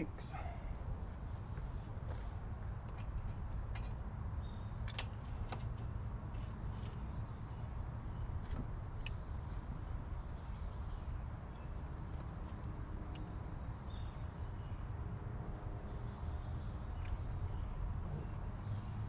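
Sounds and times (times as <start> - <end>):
light clicks: 11.5 - 13.4
low outdoor rumble: 11.9 - 19.0.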